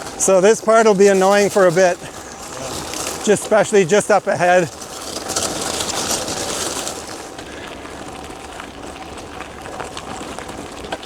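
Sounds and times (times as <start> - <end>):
bike tyres on rough trail: 0.0 - 11.0.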